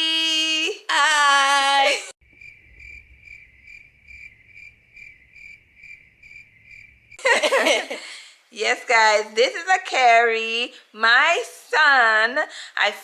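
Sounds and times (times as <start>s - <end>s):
cricket chirping: 2.2s - 7.2s.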